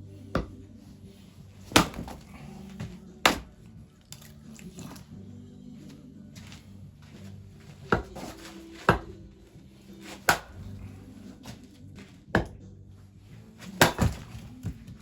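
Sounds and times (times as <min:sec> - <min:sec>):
axe chopping firewood: 0:00.3 - 0:00.8, 0:01.6 - 0:05.2, 0:07.6 - 0:09.4, 0:10.0 - 0:12.7, 0:13.6 - 0:15.0.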